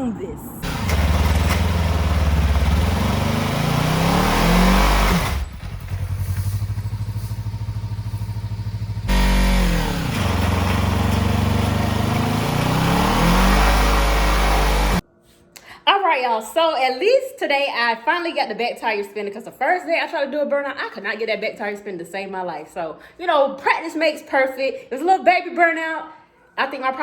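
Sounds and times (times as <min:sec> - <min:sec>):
motorcycle engine revving: 0:00.6 - 0:15.0
rear tyre spinning: 0:00.6 - 0:15.0.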